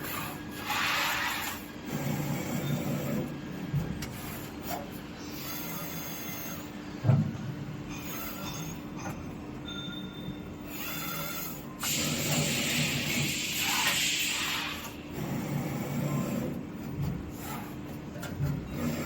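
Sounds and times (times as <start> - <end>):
machine mechanical hum: 0.0 - 19.0
light metallic squeal: 9.6 - 10.5.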